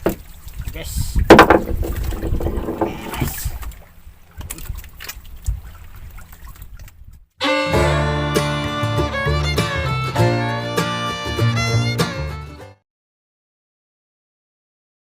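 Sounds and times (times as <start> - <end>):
water: 0.0 - 7.4
wind on microphone: 0.4 - 3.8, 4.4 - 7.3
sharp knocks and clatter: 1.3 - 3.1
background music: 7.4 - 12.8.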